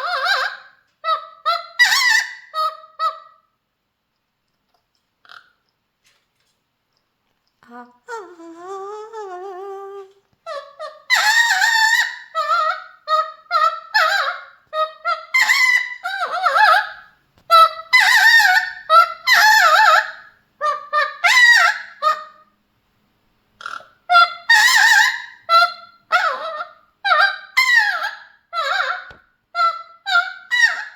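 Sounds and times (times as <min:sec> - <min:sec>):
parrot loud calls: 0:00.0 - 0:03.6, 0:05.2 - 0:05.6, 0:09.7 - 0:22.5, 0:23.6 - 0:30.9.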